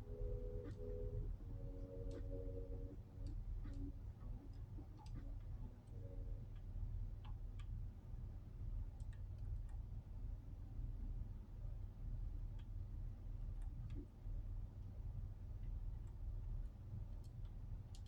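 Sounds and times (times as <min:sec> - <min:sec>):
faint hum: 0:00.0 - 0:18.0
light clicks and ticks: 0:01.8 - 0:02.6, 0:03.2 - 0:08.1, 0:08.7 - 0:10.1, 0:12.2 - 0:14.2, 0:15.6 - 0:18.0.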